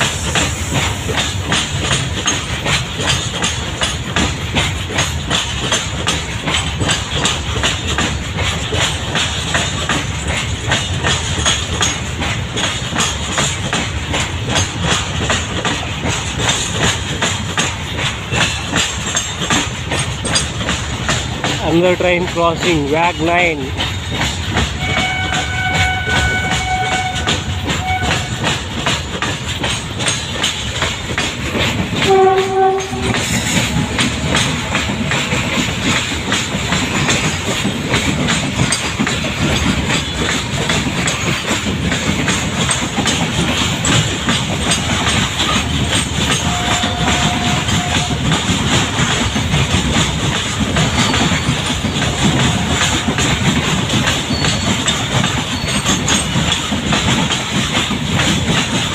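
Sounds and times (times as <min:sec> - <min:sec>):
train wheels clicking over rail joints: 0:00.0 - 0:58.9
train horn tones: 0:24.8 - 0:28.5, 0:32.0 - 0:35.1, 0:46.4 - 0:48.3.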